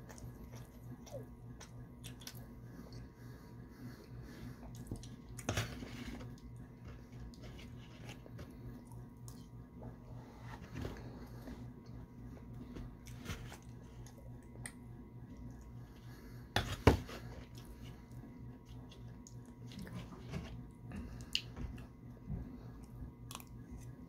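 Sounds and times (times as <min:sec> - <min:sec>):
chewing and mouth sounds: 0:00.0 - 0:03.0, 0:04.6 - 0:05.5, 0:17.4 - 0:20.2, 0:22.7 - 0:24.0
steady low hum: 0:00.0 - 0:24.0.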